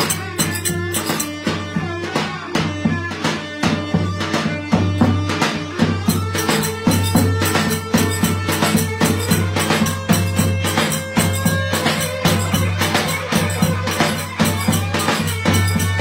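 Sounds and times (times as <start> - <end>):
fast drum beat: 0.0 - 16.0
sustained folk melody: 5.6 - 16.0.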